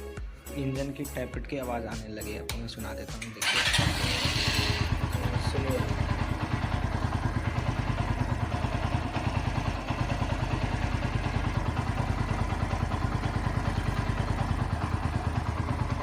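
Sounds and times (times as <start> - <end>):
motorcycle engine idling: 3.4 - 16.0.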